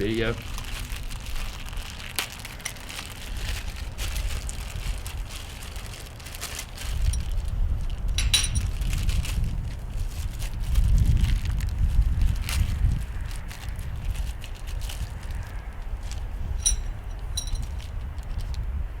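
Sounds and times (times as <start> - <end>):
wind rumble on microphone: 0.0 - 19.0
handling clicks and rustles: 6.5 - 9.2, 16.0 - 18.0
sharp metallic clink: 8.2 - 8.8, 16.6 - 17.7.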